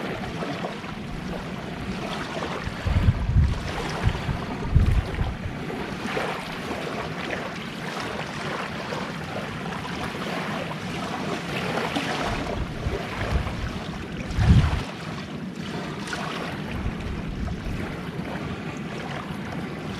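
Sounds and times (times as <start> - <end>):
wind buffeting microphone: 0.0 - 7.2, 11.0 - 15.0, 16.4 - 19.9
sea waves washing onto beach: 0.0 - 19.9.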